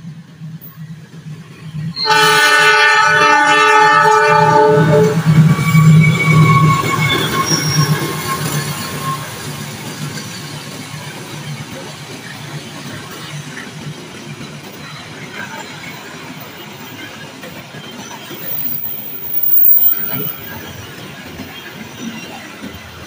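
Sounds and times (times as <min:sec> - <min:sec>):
train wheels rumbling on rails: 0:00.0 - 0:23.0
thin wheel squeal: 0:05.4 - 0:10.6, 0:17.9 - 0:21.0.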